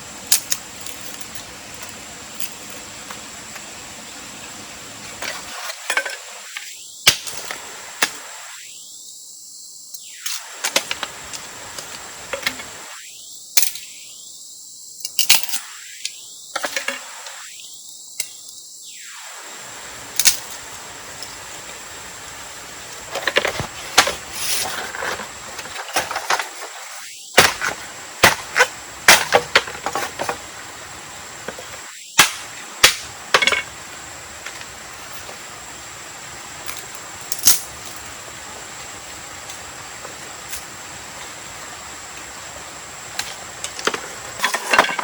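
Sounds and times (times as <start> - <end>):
thin high whine: 0.0 - 9.0, 10.0 - 14.4, 15.4 - 35.9
background hiss: 0.0 - 45.0.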